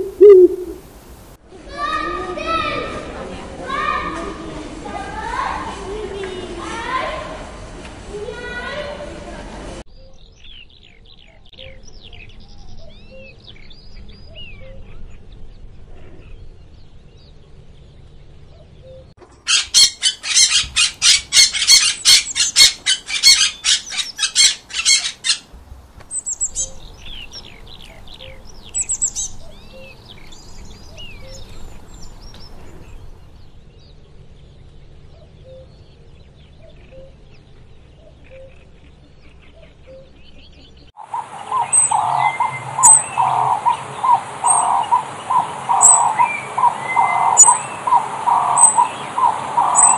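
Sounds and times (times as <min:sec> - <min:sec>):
rapid harsh bird calls: 0:00.0 - 0:00.9, 0:19.5 - 0:33.4, 0:40.9 - 0:49.9
birds chirping and twittering: 0:00.0 - 0:01.2, 0:09.9 - 0:49.9.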